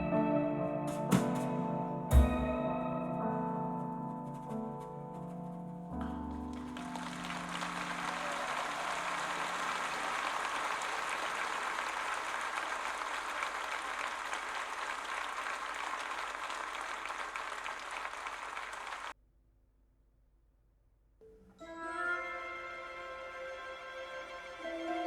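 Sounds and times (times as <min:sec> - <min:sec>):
applause over loudspeakers: 0:06.5 - 0:19.2.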